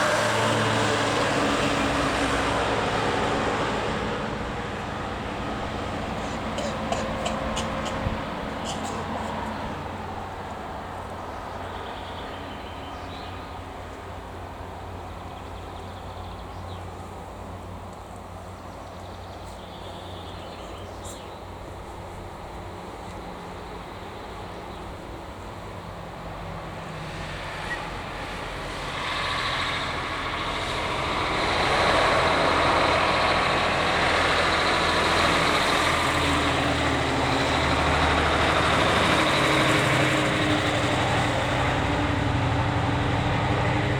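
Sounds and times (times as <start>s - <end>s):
truck engine running: 0.0s - 12.2s, 25.2s - 43.9s.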